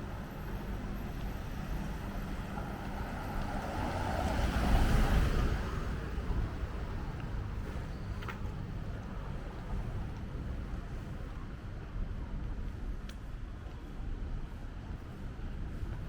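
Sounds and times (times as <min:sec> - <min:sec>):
steady traffic: 0:00.0 - 0:16.0
vehicle passing: 0:01.7 - 0:07.4.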